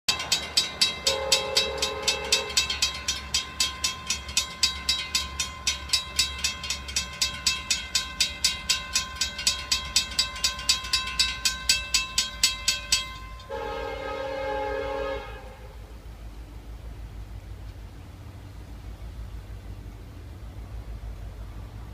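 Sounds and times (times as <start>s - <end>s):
railroad crossing bell ringing: 0.1s - 15.8s
locomotive air horn: 1.0s - 2.8s, 13.4s - 15.9s.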